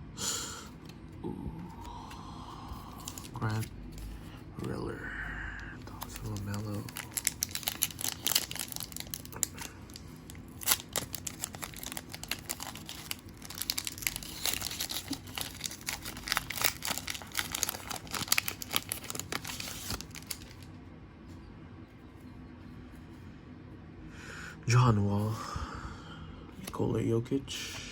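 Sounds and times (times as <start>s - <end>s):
plastic foil wrapper crinkling and tearing: 2.9s - 3.7s, 5.8s - 20.7s.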